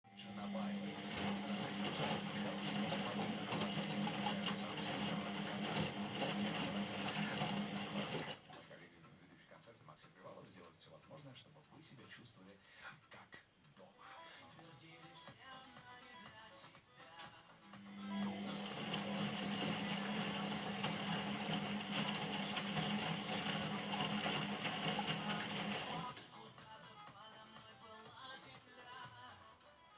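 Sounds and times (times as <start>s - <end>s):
washing machine motor hum: 0.1s - 8.5s, 17.8s - 26.3s
whirring hiss: 0.1s - 8.9s, 17.8s - 26.4s.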